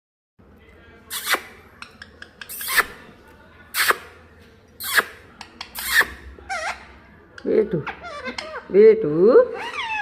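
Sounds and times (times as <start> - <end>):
parrot raspy squawks: 5.8 - 6.9, 7.8 - 8.7, 9.5 - 10.0.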